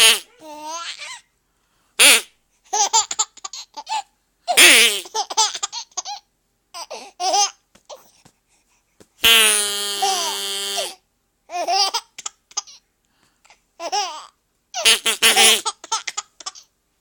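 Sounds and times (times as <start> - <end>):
harsh baby sounds: 0.0 - 1.3, 2.0 - 8.3, 9.2 - 12.8, 13.8 - 16.7
baby giggling: 2.7 - 8.1, 9.8 - 12.8, 13.8 - 16.7.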